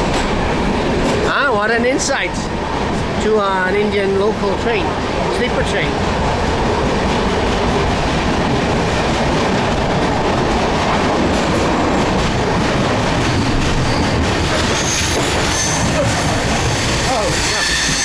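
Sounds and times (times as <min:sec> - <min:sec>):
train wheels rumbling and rattling: 0:00.0 - 0:18.0
faint high wheel squeal: 0:13.8 - 0:18.0.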